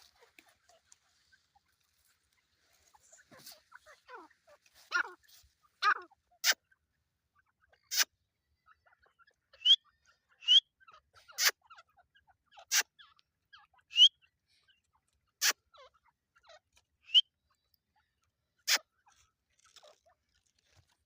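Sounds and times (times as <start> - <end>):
francolin calling: 8.7 - 11.5, 13.7 - 14.3, 17.0 - 17.7.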